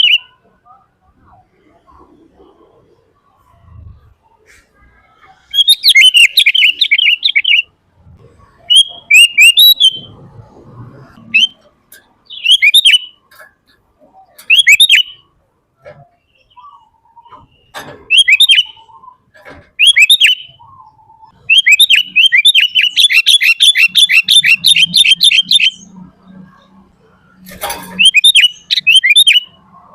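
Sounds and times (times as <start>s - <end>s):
bird singing rapid high chirps: 0.0s - 0.8s, 5.4s - 7.8s, 8.5s - 10.2s, 11.2s - 13.3s, 14.2s - 15.3s, 16.2s - 29.9s.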